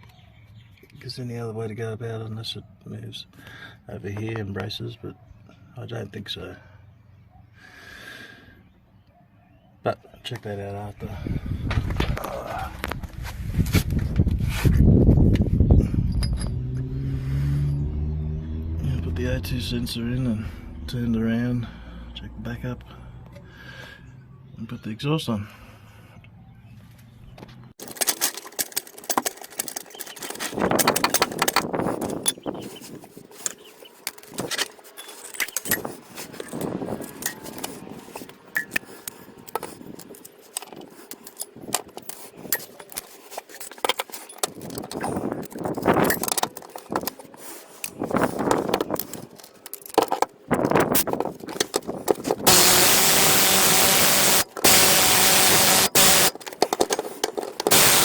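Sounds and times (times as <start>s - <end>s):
metal parts clinking and scraping: 27.8s - 58.0s
loud steady hiss: 52.5s - 56.4s, 57.7s - 58.0s.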